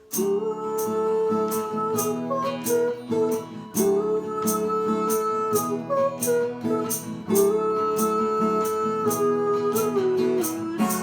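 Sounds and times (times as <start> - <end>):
acoustic guitar strumming: 0.0 - 11.0
woman singing wordless notes: 0.0 - 11.0.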